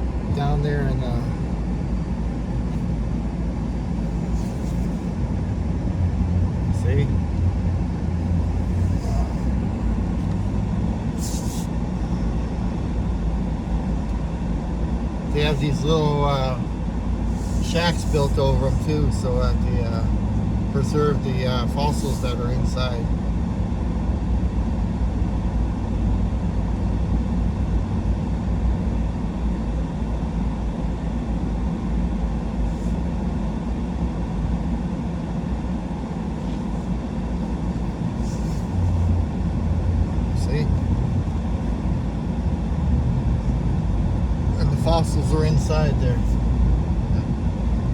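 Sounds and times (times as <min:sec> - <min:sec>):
truck engine rumbling: 0:00.0 - 0:47.9.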